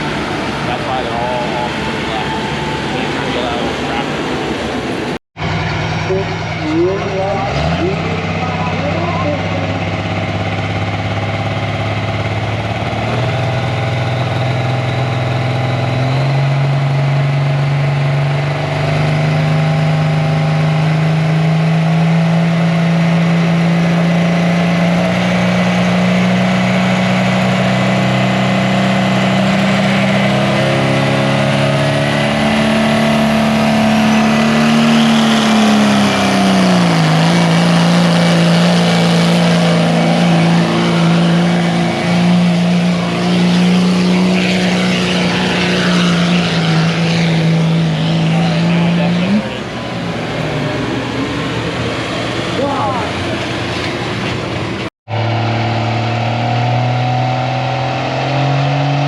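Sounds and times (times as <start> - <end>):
tractor engine running under load: 0.0 - 24.3.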